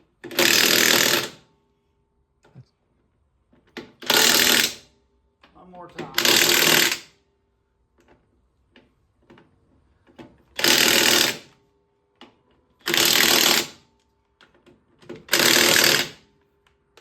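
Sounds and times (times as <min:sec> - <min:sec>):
impact wrench hammering: 0:04.0 - 0:04.8, 0:06.0 - 0:07.1, 0:15.3 - 0:16.2.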